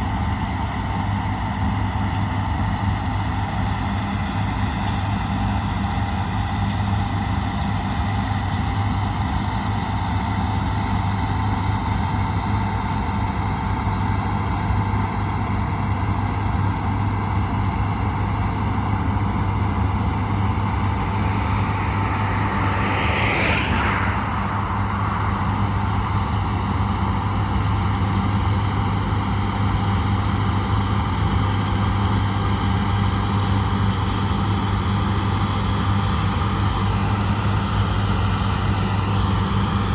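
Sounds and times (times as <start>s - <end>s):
diesel engine running: 4.1s - 35.7s
higher-pitched noise: 19.7s - 26.6s.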